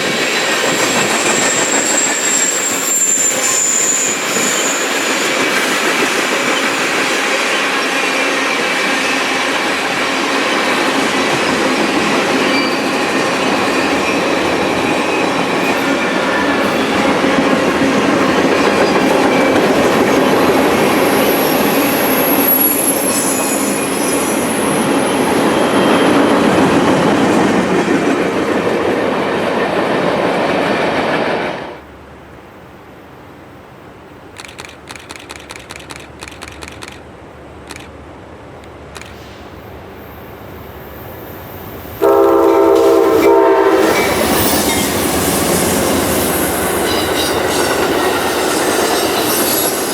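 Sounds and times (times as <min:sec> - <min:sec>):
high wheel squeal: 0:00.0 - 0:05.9, 0:12.4 - 0:14.3, 0:20.9 - 0:26.9, 0:43.1 - 0:49.9
train wheels clattering: 0:00.0 - 0:29.8, 0:42.0 - 0:49.9
quick clicks: 0:34.3 - 0:38.0, 0:38.6 - 0:39.4.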